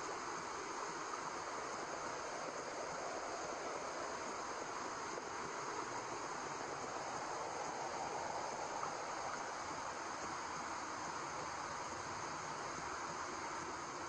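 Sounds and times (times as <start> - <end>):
white noise hiss: 0.0 - 14.0.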